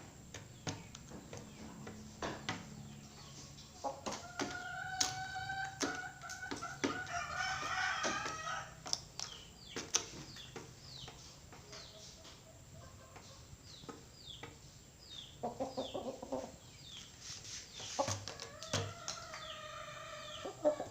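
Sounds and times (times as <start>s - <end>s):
rooster calling: 4.2s - 8.8s
rooster clucking: 17.8s - 20.9s.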